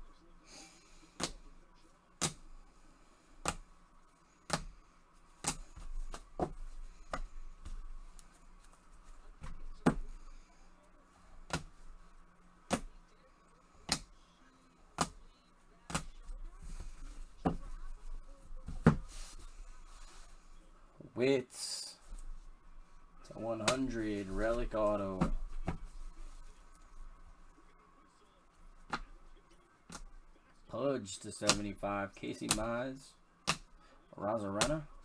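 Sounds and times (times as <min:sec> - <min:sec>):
plastic cards set on table: 0:00.4 - 0:20.9, 0:22.0 - 0:27.7, 0:28.4 - 0:35.0.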